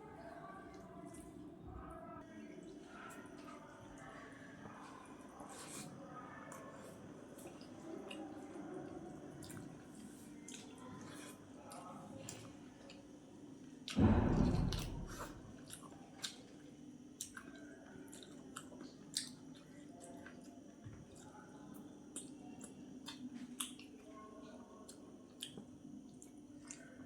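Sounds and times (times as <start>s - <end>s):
person chewing food: 17.2s - 21.4s, 22.1s - 24.0s.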